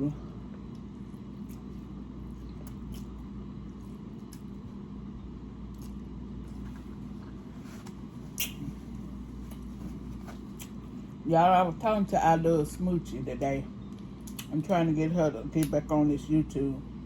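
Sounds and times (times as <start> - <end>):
low background hum: 0.0 - 17.0
person chewing noodles: 0.6 - 4.8, 5.6 - 7.3
wet mouth clicks: 8.4 - 8.7.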